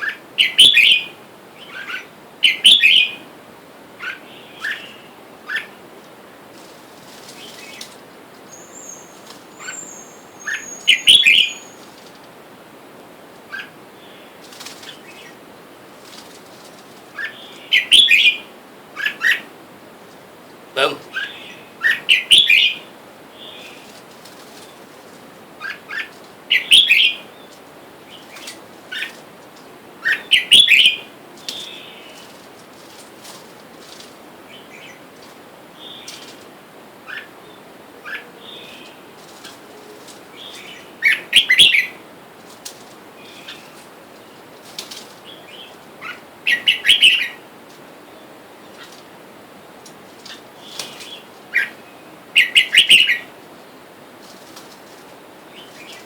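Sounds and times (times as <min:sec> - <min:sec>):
birds calling chirpy notes: 0:07.4 - 0:12.1, 0:20.7 - 0:25.0, 0:25.6 - 0:32.4, 0:37.0 - 0:42.0, 0:43.1 - 0:44.5, 0:45.2 - 0:54.0
fainter answering bird calls: 0:08.5 - 0:11.8, 0:20.8 - 0:22.8.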